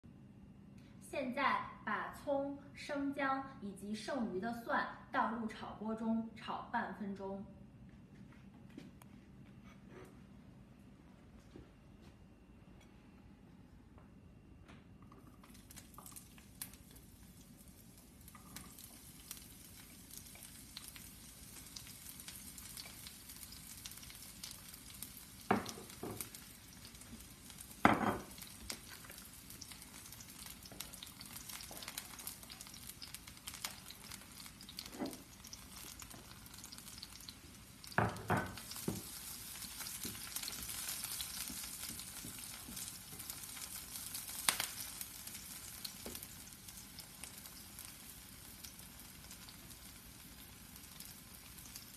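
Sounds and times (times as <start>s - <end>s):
vegetables sizzling in oil: 15.6s - 51.9s.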